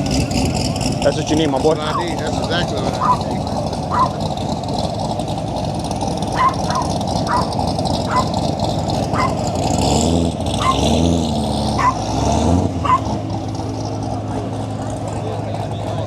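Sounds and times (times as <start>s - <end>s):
car engine revving: 0.0s - 16.0s
dog barking in short yelps: 3.9s - 4.2s, 6.4s - 7.5s, 8.1s - 8.4s, 9.2s - 9.4s, 10.6s - 10.8s, 11.8s - 12.0s, 12.8s - 13.1s.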